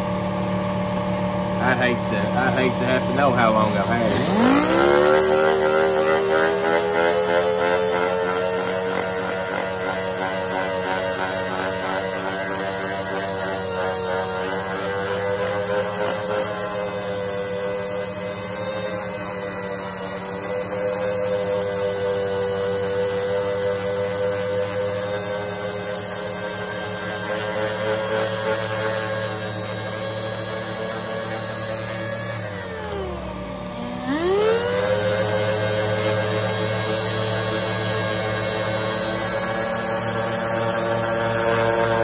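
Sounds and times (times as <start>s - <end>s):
electric sander on metal: 0.0s - 42.0s.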